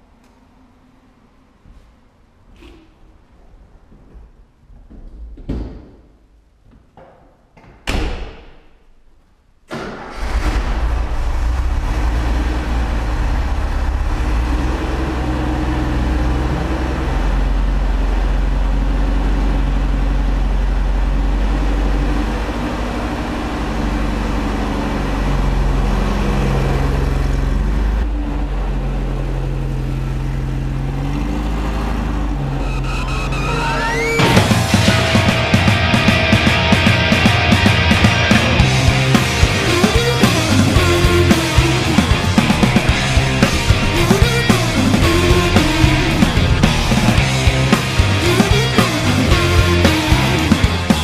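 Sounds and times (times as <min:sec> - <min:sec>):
car engine starting and idling: 0:09.7 - 0:51.0.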